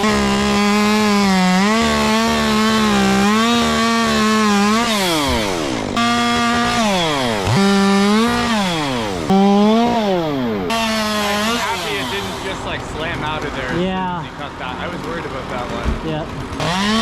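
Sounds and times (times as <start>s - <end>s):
chainsaw cutting wood: 0.0s - 12.9s, 16.6s - 17.0s.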